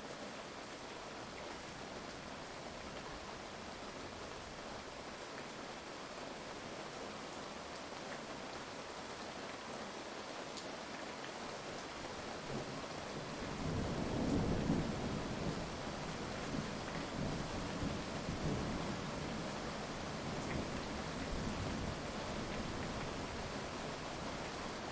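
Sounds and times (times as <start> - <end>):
heavy rain: 0.0 - 24.9.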